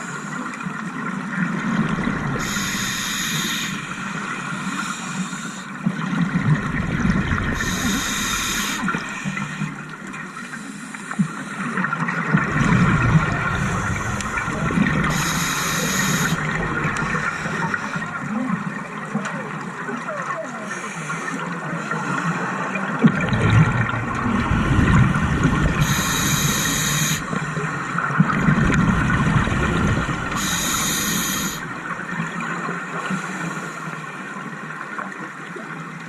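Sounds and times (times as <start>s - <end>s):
exhaled bubbles gurgling: 0.0s - 10.5s, 11.3s - 36.0s
regulator hissing inhalations: 2.4s - 4.0s, 7.6s - 9.7s, 15.0s - 16.5s, 25.8s - 27.4s, 30.3s - 31.7s.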